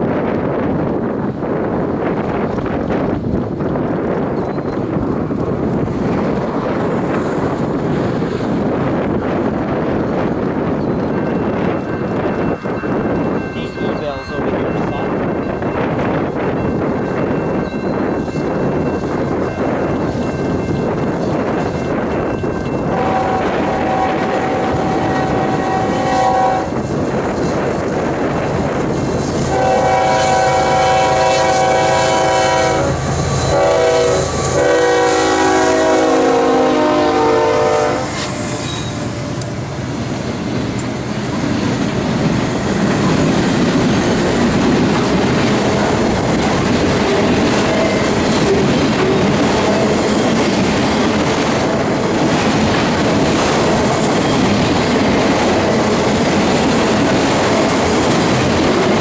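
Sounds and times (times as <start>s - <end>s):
rail cars rumbling and clacking: 0.0s - 59.0s
locomotive air horn blasts: 22.9s - 26.8s, 29.5s - 39.1s.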